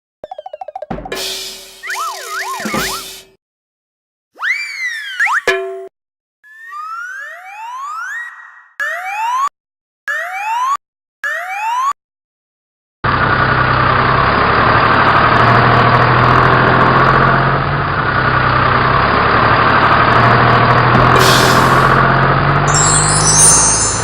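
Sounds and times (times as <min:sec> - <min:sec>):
truck engine running: 0:13.1 - 0:22.7.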